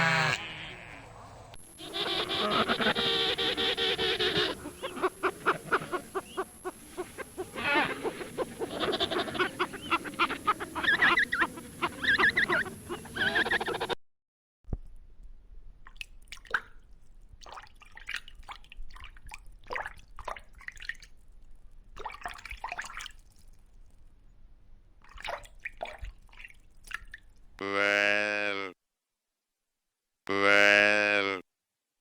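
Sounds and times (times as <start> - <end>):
animal bleat: 0.0 - 6.1, 7.5 - 10.0, 27.6 - 28.8, 30.3 - 31.4
drawn-out animal call: 0.0 - 14.0.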